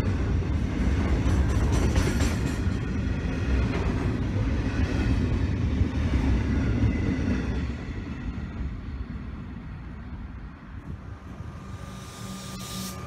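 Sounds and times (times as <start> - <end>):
freight train wheels rumbling on rail: 0.0 - 12.4.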